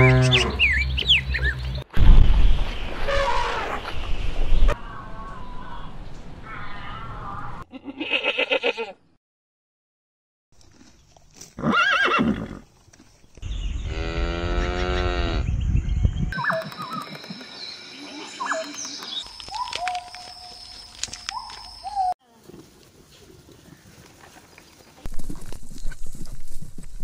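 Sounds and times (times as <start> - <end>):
high whistling calls: 16.3 - 22.2.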